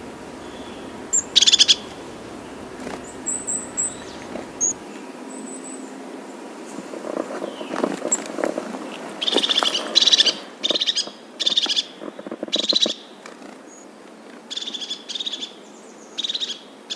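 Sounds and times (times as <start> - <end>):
bird rattling trills: 0.0 - 4.8
rustling: 0.0 - 4.8.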